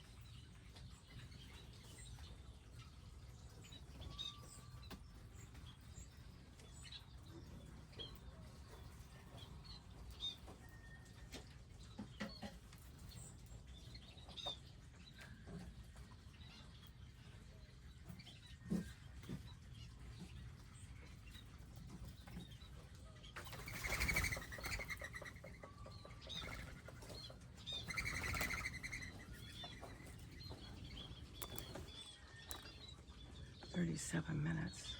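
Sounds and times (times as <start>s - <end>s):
birds chirping: 11.7s - 34.9s
rapid bird wingbeats: 23.4s - 25.5s, 27.8s - 30.2s.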